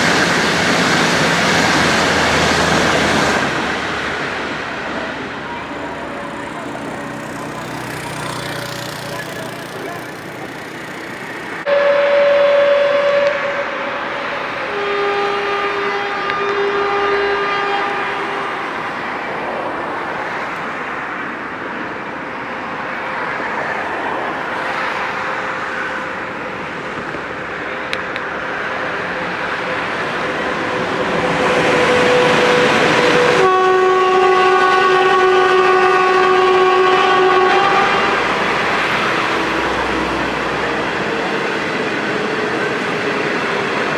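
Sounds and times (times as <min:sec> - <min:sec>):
train rushing by: 0:00.0 - 0:43.9
locomotive horn blast: 0:05.0 - 0:19.0, 0:31.0 - 0:41.1.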